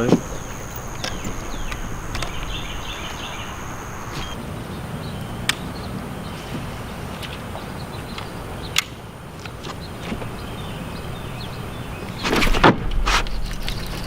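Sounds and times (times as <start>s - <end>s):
sharp clicks: 0.0s - 4.4s
low background noise: 0.0s - 14.0s.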